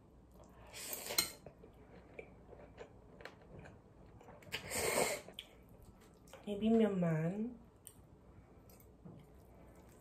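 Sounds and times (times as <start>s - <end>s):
person chewing noodles: 0.3s - 6.4s.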